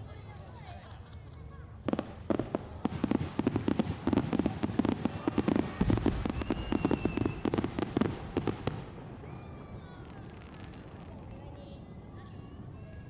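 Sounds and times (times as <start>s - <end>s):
fireworks bangs and crackles: 1.8s - 12.9s
heavy firework boom: 1.9s - 9.6s.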